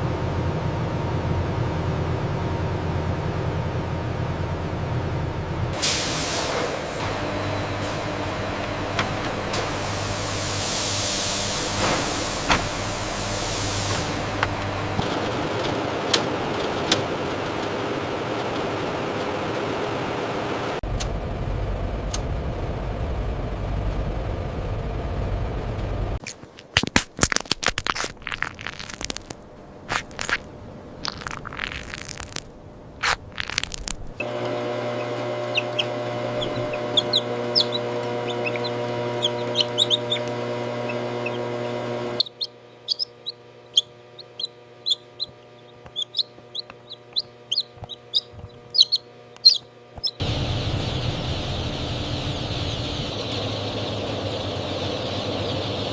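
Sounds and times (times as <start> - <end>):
hatchery machinery humming: 0.0 - 26.2, 28.9 - 55.9
chicks peeping: 33.0 - 55.9
rushing noise: 50.2 - 55.9.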